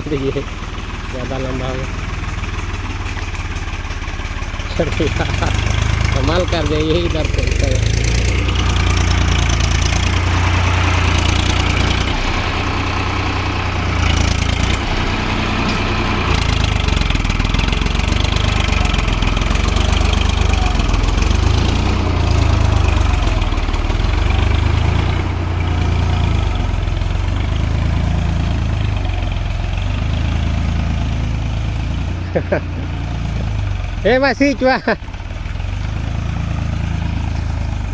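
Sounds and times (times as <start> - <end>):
tractor engine rumbling: 0.0 - 37.9.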